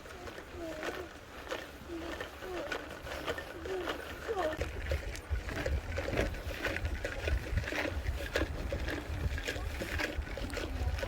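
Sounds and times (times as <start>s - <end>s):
wind buffeting microphone: 2.5s - 11.0s.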